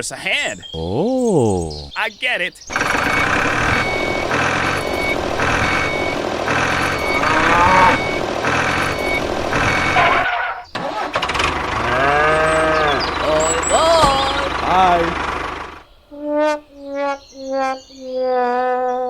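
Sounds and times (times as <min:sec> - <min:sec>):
vehicle warning beeper: 0:02.7 - 0:15.9
engine noise: 0:02.7 - 0:16.1
short voice-like call: 0:13.3 - 0:14.9.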